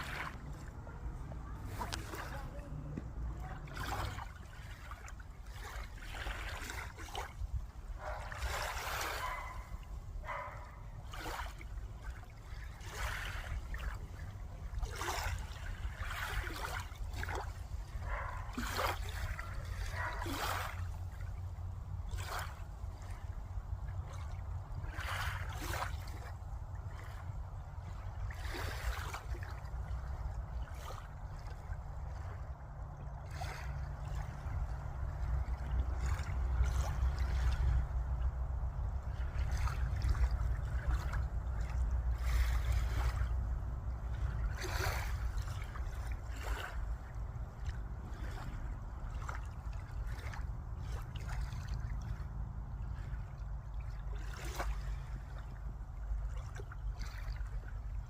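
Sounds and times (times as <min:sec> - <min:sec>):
steady low rumble: 0:00.0 - 0:08.5, 0:29.1 - 0:58.0
water splashing and lapping: 0:00.0 - 0:58.0.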